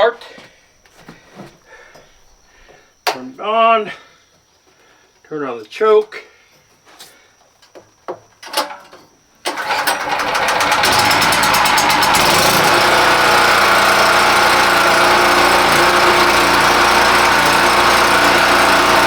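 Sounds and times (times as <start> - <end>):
generator engine starting and running: 9.5 - 19.0.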